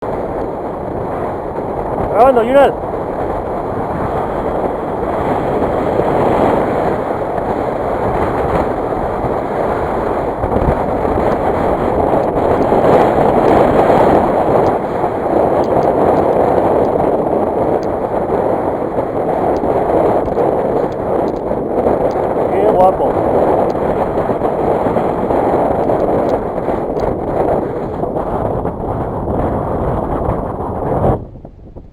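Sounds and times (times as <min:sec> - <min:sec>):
wind buffeting microphone: 0:00.0 - 0:31.9
faint small clicks: 0:15.6 - 0:17.0, 0:20.3 - 0:22.2, 0:25.8 - 0:27.1.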